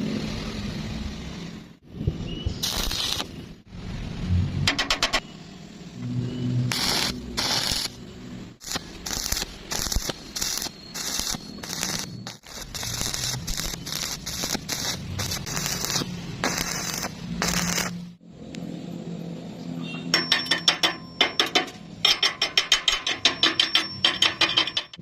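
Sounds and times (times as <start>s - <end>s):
welding arc crackling: 2.6s - 3.6s, 6.6s - 18.2s.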